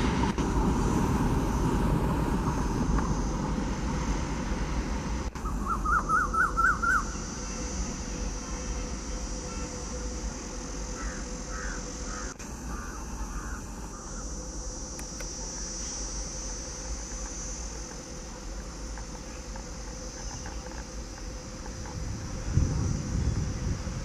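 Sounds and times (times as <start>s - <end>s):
high insect drone: 0.0s - 24.0s
bird calling: 5.4s - 7.2s, 10.9s - 14.4s.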